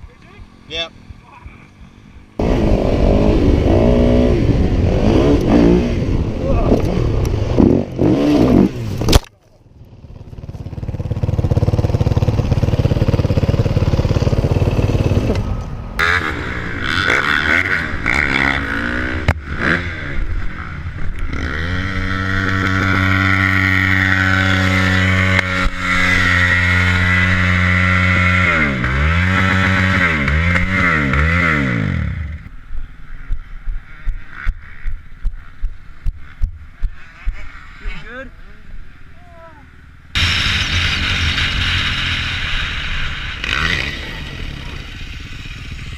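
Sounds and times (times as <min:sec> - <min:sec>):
low rumbling noise: 0:00.0 - 0:09.1, 0:09.7 - 0:45.9
dirt bike engine revving: 0:00.4 - 0:09.2, 0:16.0 - 0:32.5, 0:40.1 - 0:45.9.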